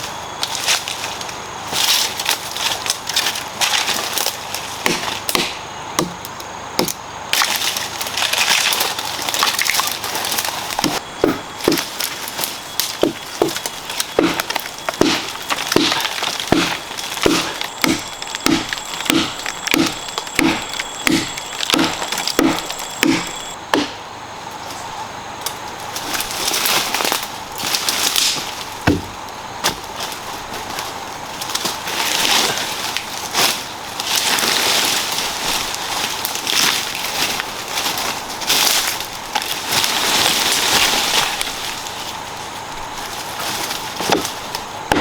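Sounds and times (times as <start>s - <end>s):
wood cracking and snapping: 1.8s - 23.9s, 26.1s - 30.1s.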